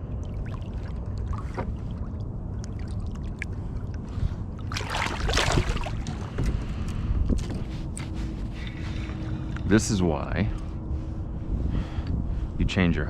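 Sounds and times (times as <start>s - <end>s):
water sloshing and dripping: 0.0s - 9.6s
steady low rumble: 0.0s - 13.0s
fish splashing in water: 4.6s - 6.4s.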